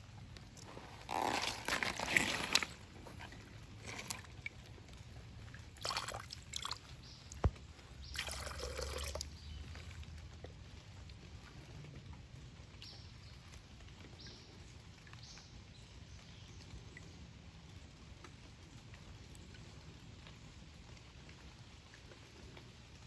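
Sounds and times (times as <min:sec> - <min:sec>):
water sloshing in a gold pan: 0:00.2 - 0:11.6.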